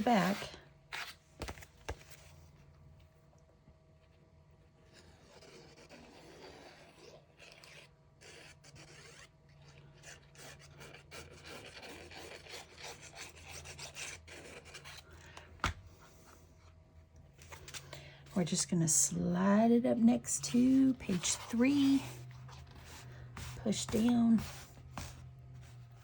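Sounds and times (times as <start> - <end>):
paper pages rubbing and scraping: 0.0 - 2.4, 10.6 - 15.2, 20.2 - 26.0.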